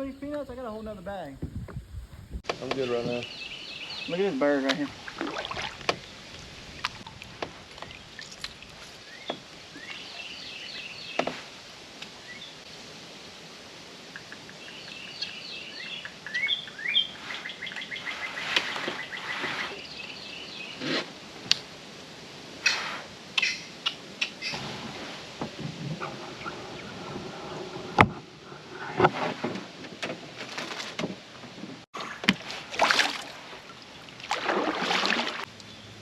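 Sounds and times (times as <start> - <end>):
birds chirping and trilling: 2.6 - 4.7, 9.0 - 11.4, 14.2 - 21.0, 26.0 - 27.6
knocks and swishes from boat: 17.2 - 19.8, 24.4 - 35.5.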